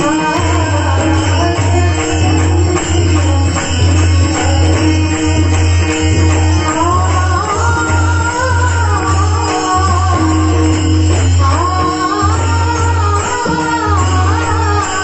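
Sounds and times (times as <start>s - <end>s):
devotional instrumental music: 0.0s - 15.0s
jingling percussion: 0.0s - 15.0s
woman singing: 6.6s - 15.0s.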